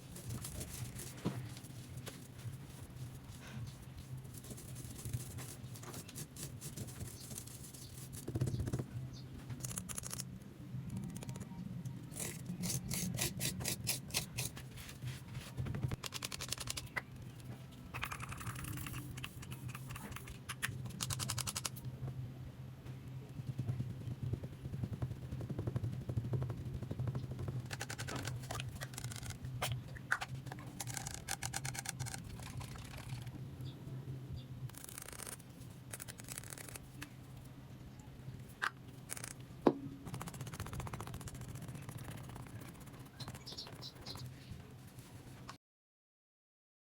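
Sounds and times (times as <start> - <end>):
steady low hum: 0.0 - 45.4
brushes scraping coconut shell: 12.1 - 15.0.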